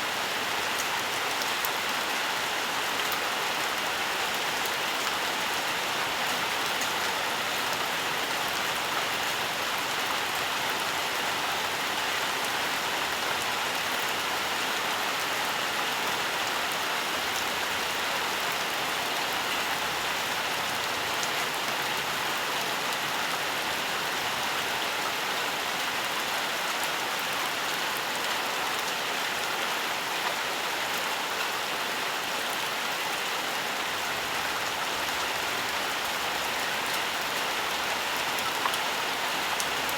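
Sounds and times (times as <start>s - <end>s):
steady rainfall: 0.0s - 39.9s
raindrops pattering on leaves: 33.9s - 39.9s.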